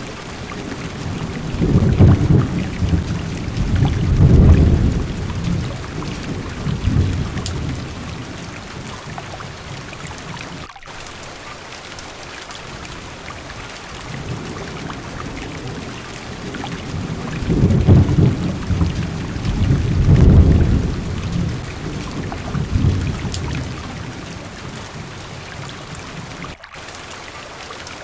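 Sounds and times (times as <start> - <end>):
thunder rolling: 0.0 - 8.9, 14.1 - 25.4
heavy rain on car roof: 0.0 - 11.4, 12.7 - 26.9.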